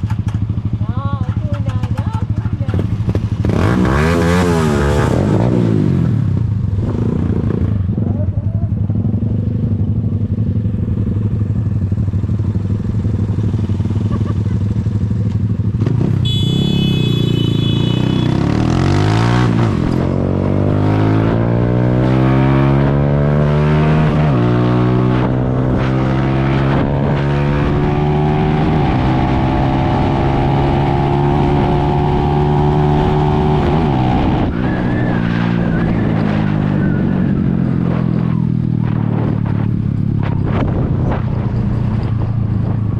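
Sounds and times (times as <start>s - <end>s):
motorcycle engine accelerating: 0.0s - 42.9s.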